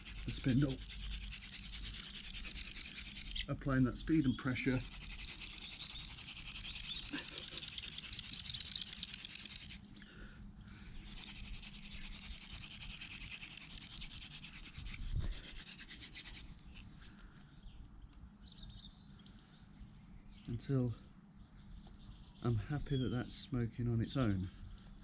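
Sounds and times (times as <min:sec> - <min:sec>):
hand drill friction rasping: 0:00.0 - 0:09.8, 0:11.0 - 0:16.9.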